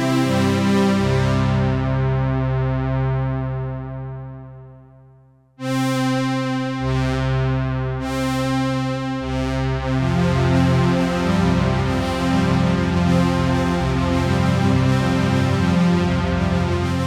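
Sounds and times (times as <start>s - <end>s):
synthesizer playing sustained chords: 0.0s - 4.8s, 9.2s - 17.0s.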